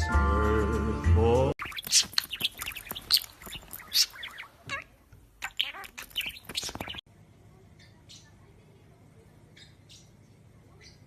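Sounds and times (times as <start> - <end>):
parrot chirping and whistling: 1.6 - 4.8, 5.4 - 7.0
faint background noise: 1.6 - 11.0.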